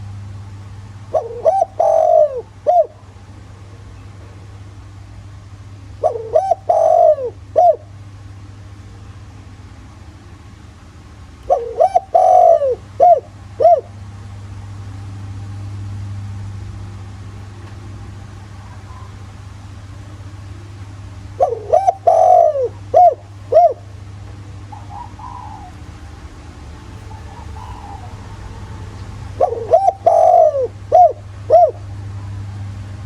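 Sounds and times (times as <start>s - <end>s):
steady low hum: 0.0s - 33.0s
dove cooing: 1.1s - 3.1s, 6.0s - 8.0s, 11.4s - 14.0s, 17.4s - 32.1s.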